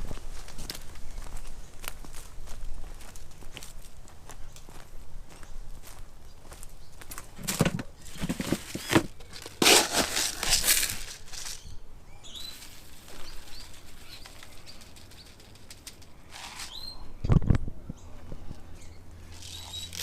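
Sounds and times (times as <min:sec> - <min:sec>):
high bird chirps: 0:11.6 - 0:15.4, 0:16.4 - 0:17.1, 0:18.8 - 0:20.0
bird wings flapping: 0:12.7 - 0:16.7.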